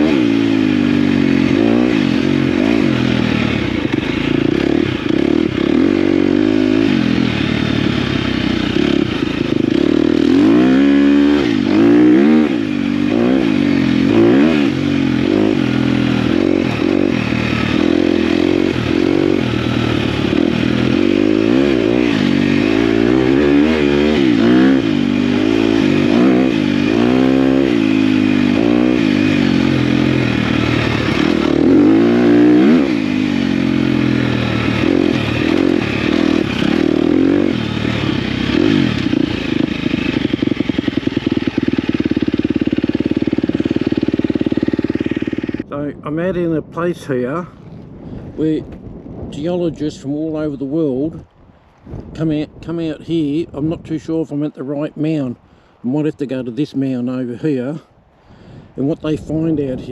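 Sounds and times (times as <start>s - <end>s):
dirt bike engine revving: 0.0s - 45.7s.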